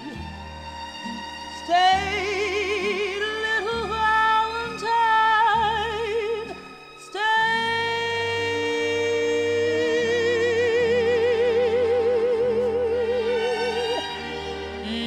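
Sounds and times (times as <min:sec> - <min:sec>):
sustained accompaniment chords: 0:00.0 - 0:15.0
woman singing long note: 0:07.1 - 0:14.1.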